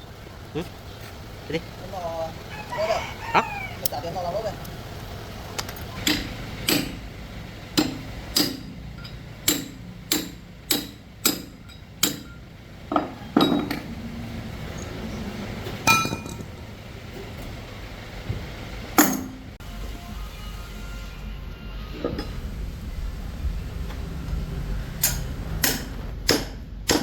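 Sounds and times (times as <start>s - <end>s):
hammer striking metal: 6.0s - 7.0s, 7.8s - 13.9s, 15.9s - 16.5s, 19.0s - 19.5s, 25.0s - 27.0s.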